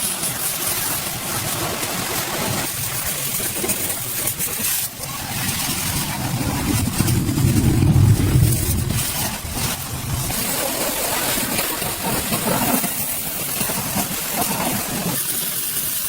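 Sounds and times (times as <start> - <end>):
engine running: 5.0 - 12.9.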